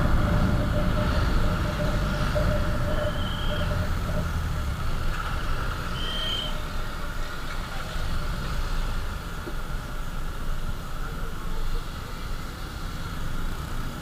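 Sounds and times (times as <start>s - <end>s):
motorcycle engine running: 0.0s - 5.9s
short high beep: 1.2s - 3.9s.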